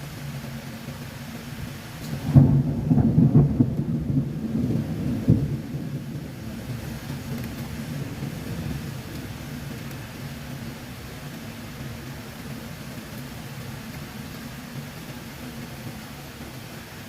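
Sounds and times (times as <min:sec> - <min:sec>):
steady rain: 0:00.0 - 0:17.0
wind: 0:00.0 - 0:17.0
thunder clap and rumble: 0:02.1 - 0:10.7.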